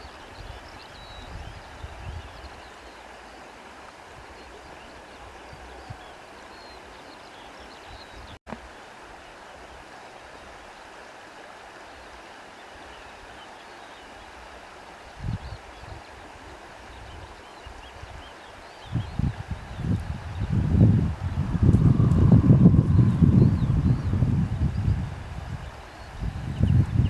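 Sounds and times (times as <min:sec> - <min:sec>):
stream water rushing: 0:00.0 - 0:27.0
low rumbling: 0:20.6 - 0:25.3.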